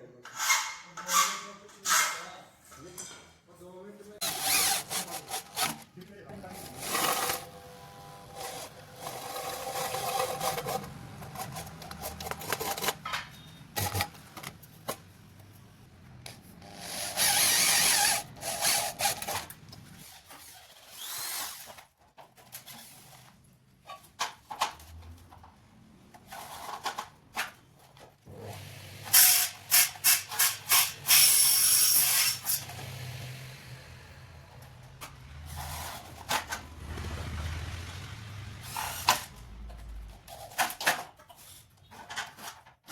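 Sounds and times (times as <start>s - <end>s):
power tool running: 4.2s - 5.8s, 16.7s - 19.4s, 28.3s - 34.7s.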